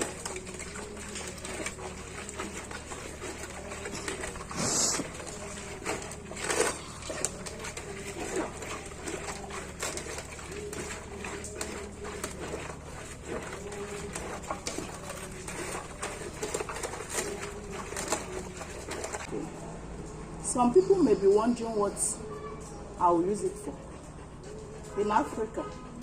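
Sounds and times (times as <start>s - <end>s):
hands squelching leaves in water: 0.0s - 19.4s.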